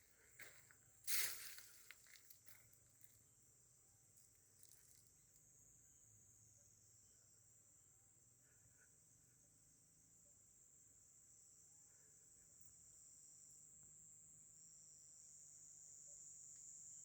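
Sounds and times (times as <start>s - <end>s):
rustling and crunching: 0.0s - 3.1s.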